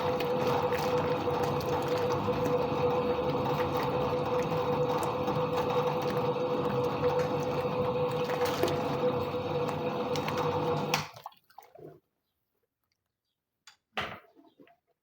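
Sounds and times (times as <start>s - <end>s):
washing machine motor hum: 0.0s - 11.1s.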